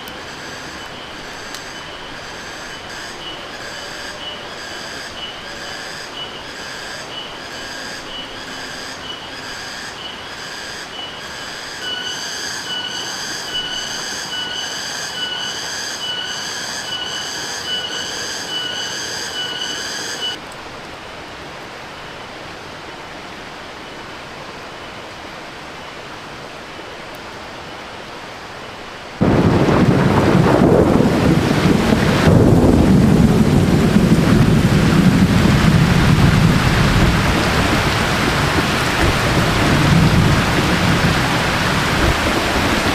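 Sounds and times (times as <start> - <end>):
heavy rain: 0.0 - 15.8, 16.6 - 42.9
pulsing high whistling tone: 0.3 - 20.4.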